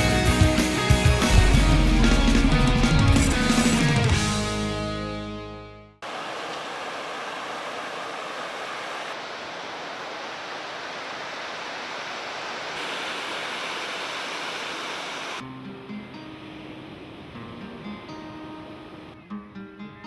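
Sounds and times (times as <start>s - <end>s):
plucked guitar music: 0.0s - 5.9s, 15.4s - 20.0s
steady rushing noise: 1.2s - 4.6s.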